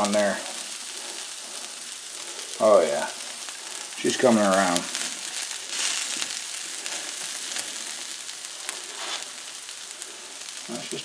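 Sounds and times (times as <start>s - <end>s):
food sizzling on a griddle: 0.0s - 11.0s.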